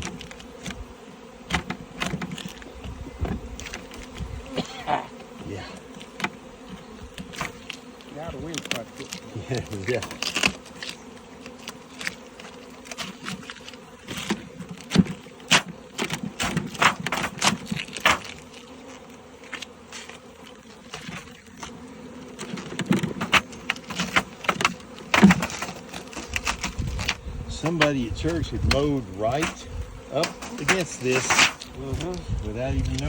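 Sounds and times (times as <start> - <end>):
bees buzzing: 0.0 - 33.0
sharp clicks and knocks: 30.2 - 32.2.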